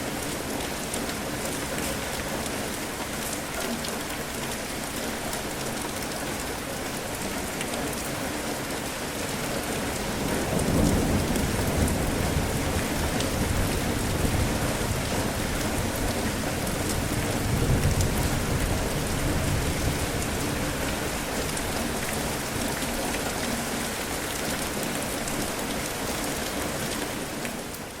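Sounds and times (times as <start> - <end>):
steady rain falling: 0.0 - 28.0
low thunder rumbling: 16.8 - 20.2.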